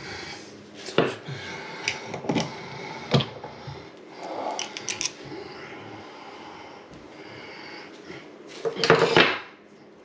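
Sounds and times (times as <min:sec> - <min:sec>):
small parts knocking and clicking: 0:04.6 - 0:05.2.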